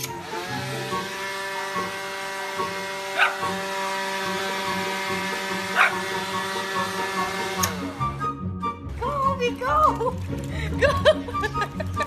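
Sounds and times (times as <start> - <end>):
leaf blower running: 0.0 - 8.6
puppy barking: 3.2 - 3.5, 5.7 - 6.0.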